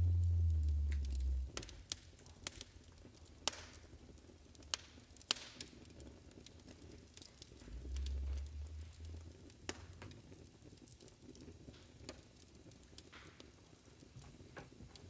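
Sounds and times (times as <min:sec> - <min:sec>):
faint hiss: 0:00.0 - 0:02.0, 0:07.4 - 0:10.4
wood fire crackling: 0:00.0 - 0:15.0.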